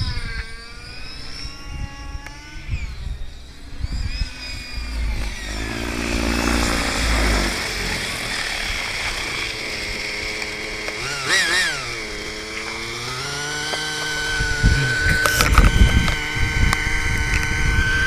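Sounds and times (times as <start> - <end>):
low rumbling buffets: 0.0 - 11.0, 11.7 - 18.0
model aircraft engine buzzing: 0.0 - 18.0.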